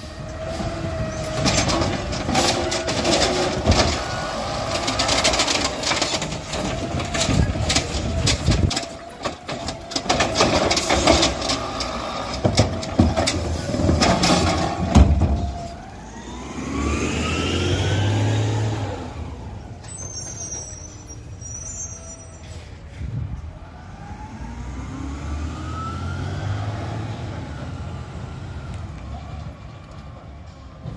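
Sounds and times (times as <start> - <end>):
garbage truck clattering and banging: 0.0 - 16.1
truck engine revving: 0.0 - 19.8, 23.8 - 29.6
high squeal: 19.7 - 23.0.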